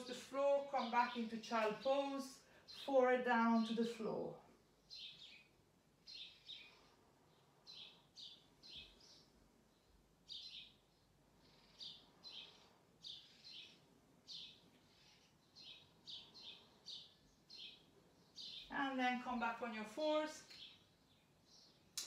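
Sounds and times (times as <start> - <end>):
small bird chirping: 4.8 - 19.1, 20.2 - 22.0.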